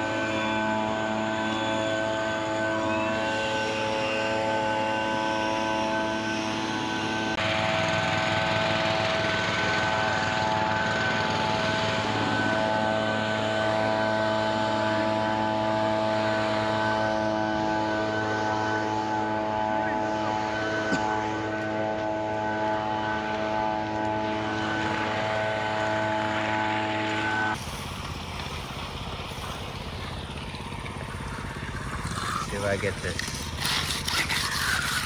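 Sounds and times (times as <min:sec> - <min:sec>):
engine running steadily: 0:00.0 - 0:35.0.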